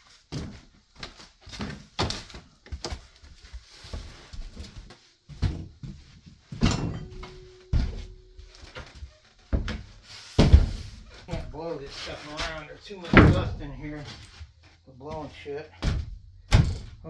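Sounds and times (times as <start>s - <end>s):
wood knocking on subfloor: 9.5s - 11.5s, 15.8s - 17.0s.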